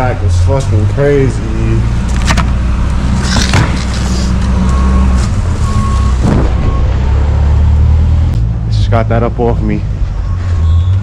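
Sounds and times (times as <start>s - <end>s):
diesel engine idling: 0.0s - 10.4s
backup alarm beeps: 4.6s - 7.0s, 10.1s - 11.0s.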